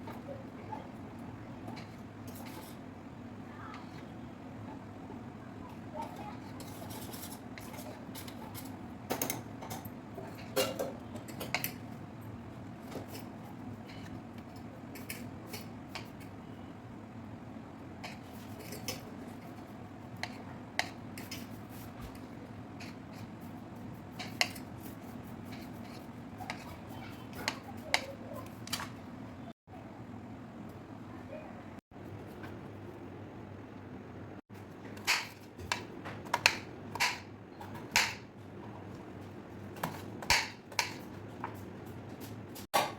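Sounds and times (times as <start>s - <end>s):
kitchen utensils clinking: 6.5s - 11.9s, 18.0s - 19.2s.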